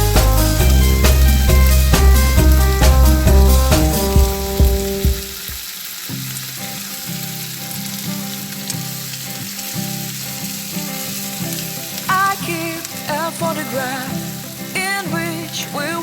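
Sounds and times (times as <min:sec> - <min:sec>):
background music with bass: 0:00.0 - 0:05.6
food sizzling in hot oil: 0:00.0 - 0:16.0.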